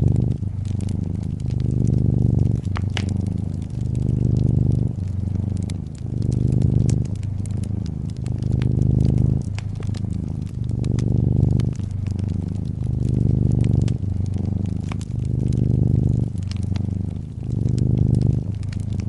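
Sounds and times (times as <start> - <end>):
cat purring: 0.0 - 19.0
fire crackling and popping: 0.0 - 19.0.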